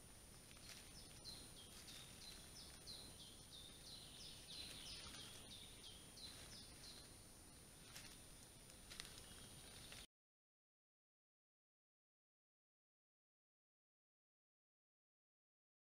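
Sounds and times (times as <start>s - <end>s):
songbird singing faintly: 0.0s - 10.1s.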